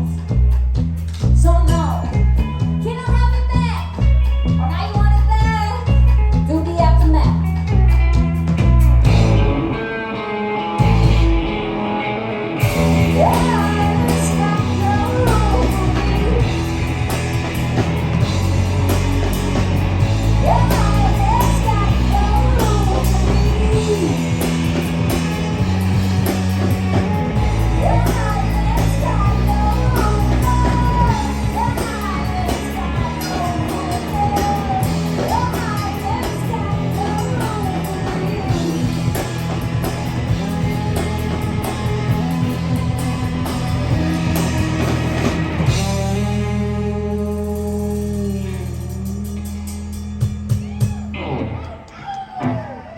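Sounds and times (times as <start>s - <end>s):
live rock band playing: 0.0s - 52.9s
guitar melody bending pitch: 51.0s - 52.6s.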